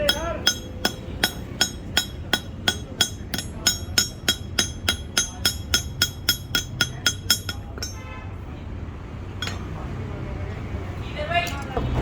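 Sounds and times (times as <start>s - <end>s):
hammer tapping metal: 0.0s - 8.2s, 9.4s - 9.8s.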